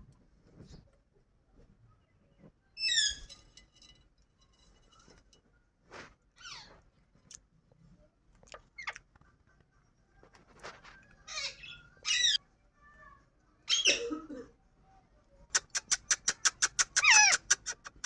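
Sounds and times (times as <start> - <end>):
parrot chirping and squawking: 6.4 - 6.7, 8.8 - 9.0, 11.3 - 12.4, 15.6 - 18.0.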